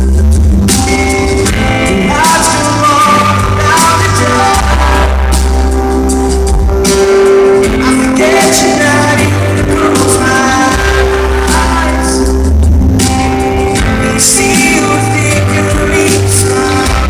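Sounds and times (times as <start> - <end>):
heavy bass: 0.0 - 17.0
live band playing pop ballad: 0.0 - 17.0
man singing: 1.4 - 6.0, 7.1 - 12.7, 13.7 - 17.0.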